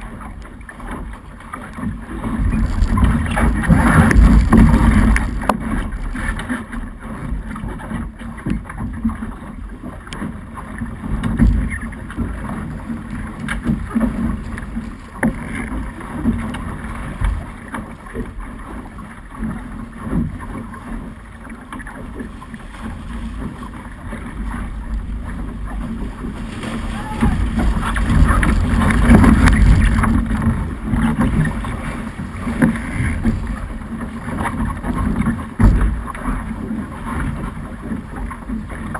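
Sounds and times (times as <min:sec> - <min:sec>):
water slapping along hull: 0:00.0 - 0:38.9
wind buffeting microphone: 0:01.9 - 0:06.5, 0:22.0 - 0:38.9.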